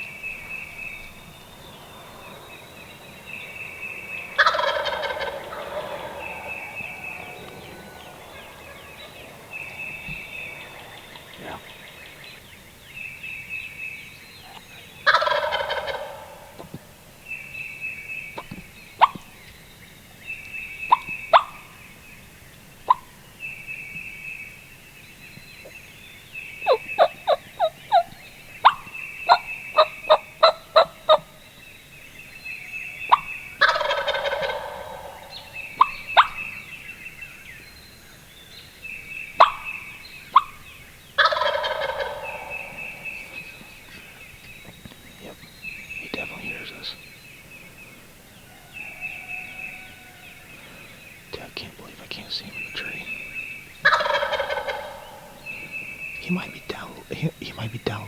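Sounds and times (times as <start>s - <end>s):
wild turkey gobbling: 0.1s - 13.2s, 14.4s - 17.0s, 18.3s - 19.6s, 20.7s - 21.8s, 26.6s - 31.4s, 32.9s - 37.0s, 39.3s - 47.0s, 48.0s - 58.0s.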